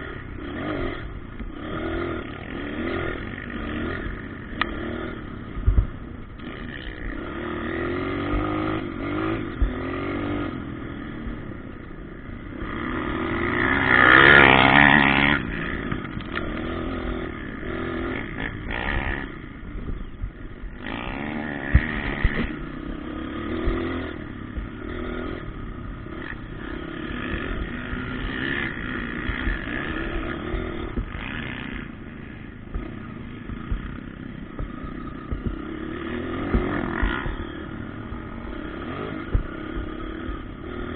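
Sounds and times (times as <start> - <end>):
motocross bikes revving: 0.0 - 40.9
motorbike passing by: 0.0 - 40.9.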